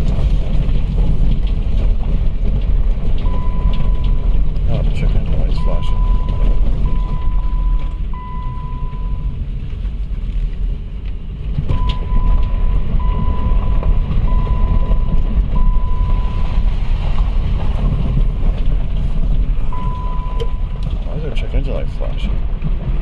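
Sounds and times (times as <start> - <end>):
car engine running: 0.0 - 23.0
dashboard warning chime: 3.3 - 9.4, 11.7 - 16.8, 19.7 - 21.1.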